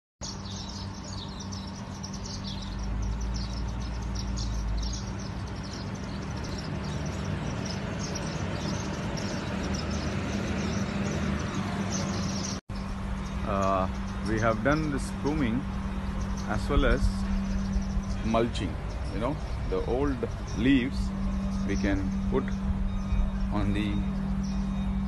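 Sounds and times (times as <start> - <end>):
small birds chirping: 0.2 - 25.0
steady hum: 0.4 - 25.0
low rumble: 14.2 - 25.0.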